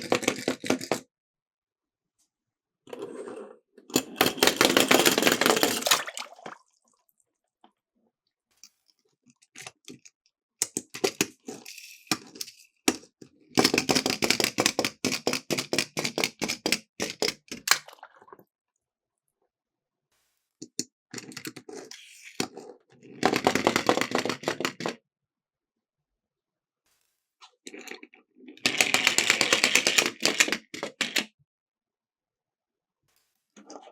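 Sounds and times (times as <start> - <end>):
toy cars rattling down plastic slope: 0.0 - 1.0, 3.0 - 6.2, 21.2 - 25.0, 27.8 - 31.3.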